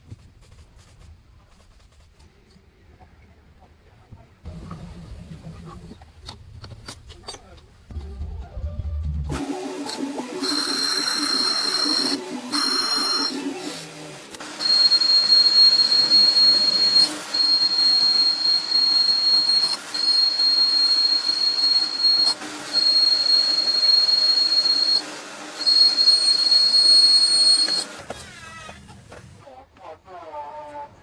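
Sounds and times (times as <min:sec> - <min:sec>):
high-pitched machine whine: 0:09.3 - 0:28.3.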